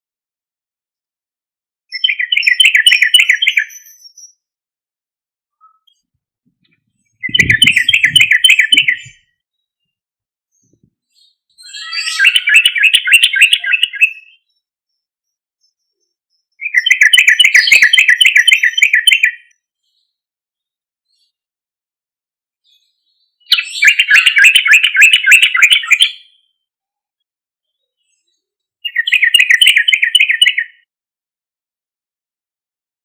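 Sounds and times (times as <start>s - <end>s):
bulbul singing: 7.1s - 9.3s, 11.6s - 14.6s, 16.4s - 19.5s, 28.8s - 30.8s.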